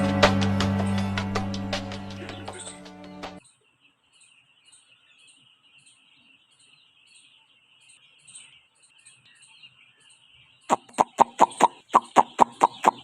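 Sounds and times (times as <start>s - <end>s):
chicks peeping: 3.4s - 13.0s.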